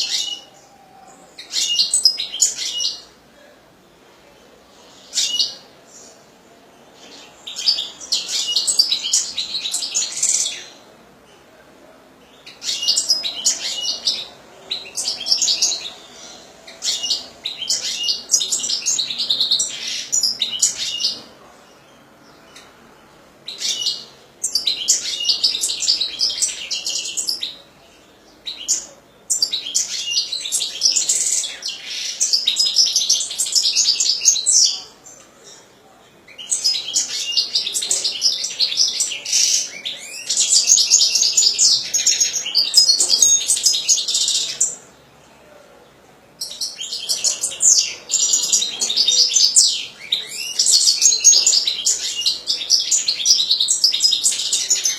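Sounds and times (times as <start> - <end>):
finch singing: 12.3 - 22.8, 23.5 - 27.6, 36.3 - 44.9, 46.4 - 54.9.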